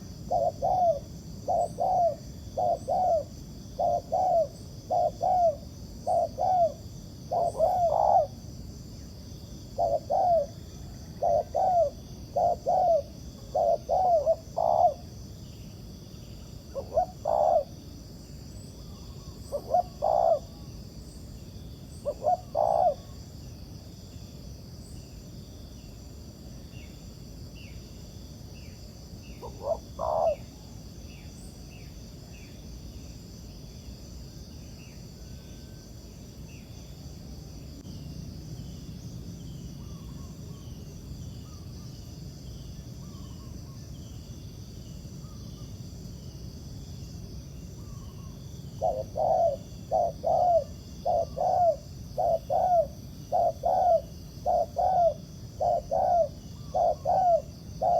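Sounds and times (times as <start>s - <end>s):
small bird chirping faintly: 0.0s - 26.0s, 26.7s - 45.8s, 47.6s - 57.9s
high insect drone: 0.0s - 57.9s
doves cooing: 0.3s - 8.4s, 9.8s - 15.1s, 16.7s - 17.7s, 19.4s - 20.7s, 22.0s - 23.2s, 29.4s - 30.6s, 48.8s - 57.9s.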